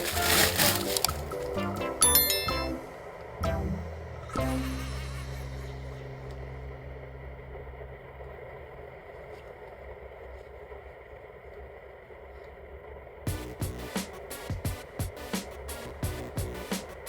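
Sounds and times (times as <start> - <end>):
low held drone: 0.8 - 10.1.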